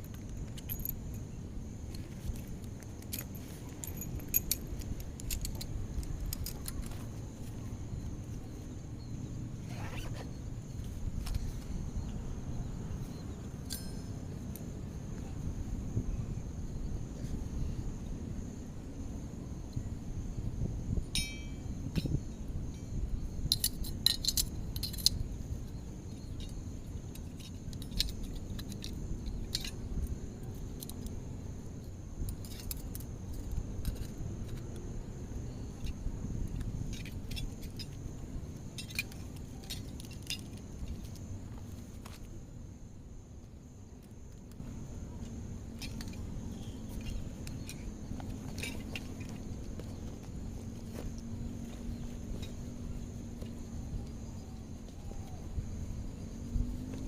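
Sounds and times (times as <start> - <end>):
high insect trill: 0.0 - 57.0.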